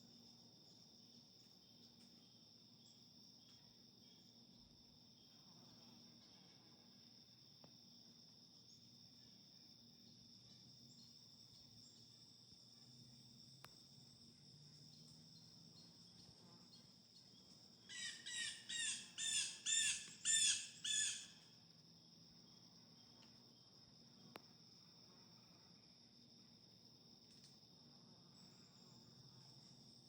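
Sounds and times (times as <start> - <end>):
crickets and insects droning: 0.0 - 30.0
bird calling loudly: 17.9 - 21.3.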